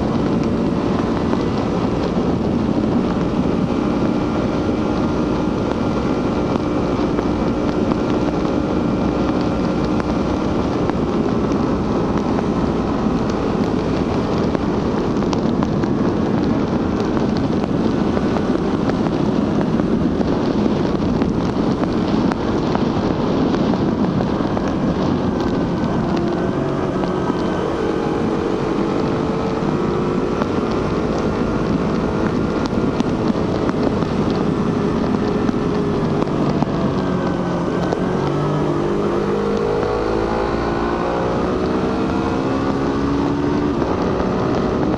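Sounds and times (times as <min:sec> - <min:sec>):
motorcycle engine running: 0:00.0 - 0:44.9
wind rushing over microphone: 0:00.0 - 0:44.9.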